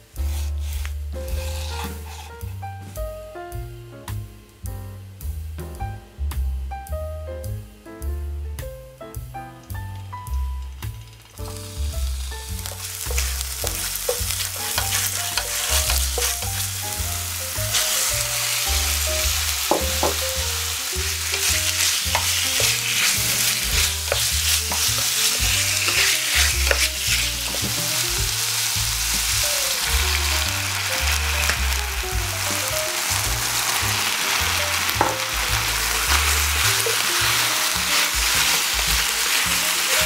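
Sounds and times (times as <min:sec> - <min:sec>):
meat sizzling in oil: 0:00.0 - 0:03.6, 0:09.7 - 0:40.0
background music with bass: 0:00.0 - 0:40.0
spatula scraping a pot: 0:00.2 - 0:02.4, 0:12.7 - 0:16.9, 0:21.2 - 0:28.0.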